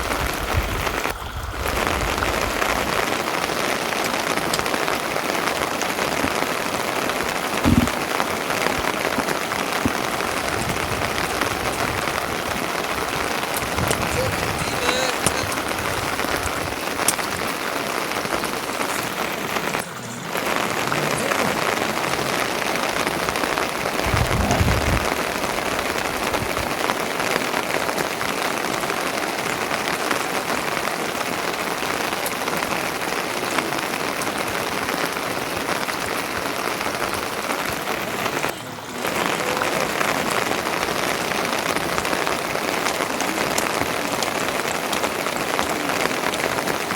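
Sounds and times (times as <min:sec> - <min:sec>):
heavy rain falling: 0:00.0 - 0:46.9
short low thump: 0:07.6 - 0:08.0
low rumble: 0:24.0 - 0:26.6.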